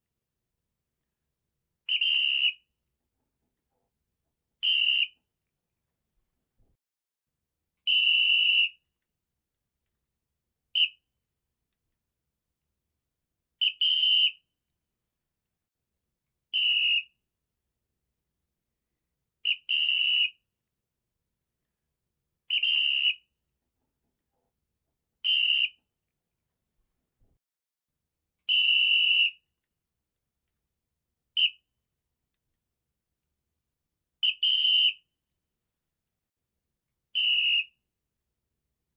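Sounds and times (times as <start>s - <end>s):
shrill whistle-like tones: 1.8s - 2.9s, 4.6s - 5.4s, 7.8s - 9.0s, 10.7s - 11.2s, 13.5s - 14.6s, 16.5s - 17.3s, 19.4s - 20.6s, 22.4s - 23.5s, 25.2s - 26.0s, 28.4s - 29.6s, 31.3s - 31.8s, 34.2s - 35.2s, 37.1s - 37.9s.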